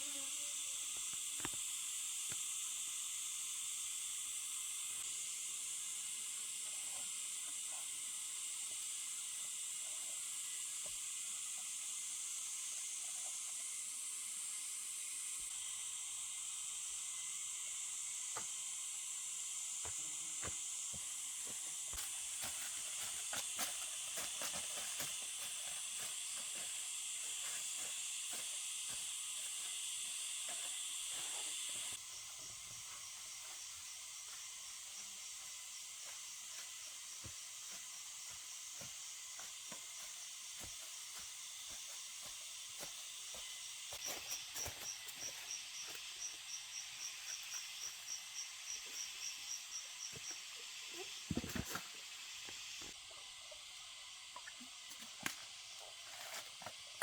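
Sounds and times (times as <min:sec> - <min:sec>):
high insect chorus: 0:00.0 - 0:57.0
pulsed high insect chirping: 0:21.2 - 0:51.2.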